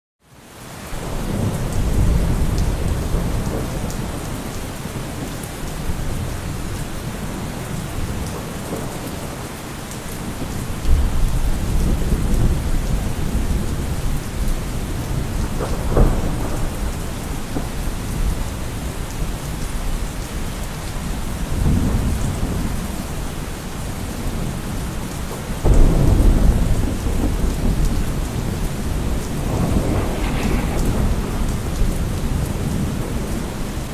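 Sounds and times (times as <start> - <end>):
steady rain: 0.2 - 33.9
thunder rumbling: 1.0 - 9.6, 10.2 - 20.0, 21.1 - 33.9
thunder cracks: 10.4 - 18.8, 25.6 - 33.9.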